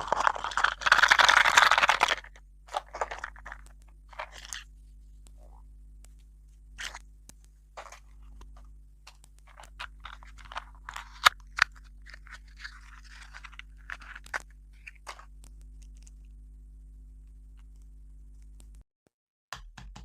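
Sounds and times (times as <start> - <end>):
chewing crunchy food: 0.0 - 4.7, 7.8 - 16.2.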